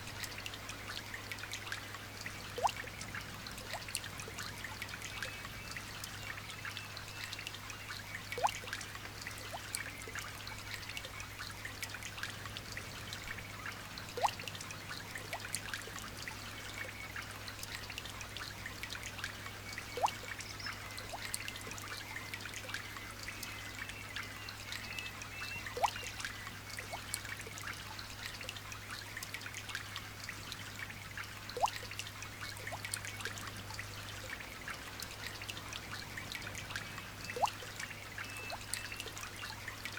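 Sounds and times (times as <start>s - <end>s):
light rain dripping: 0.0s - 39.9s.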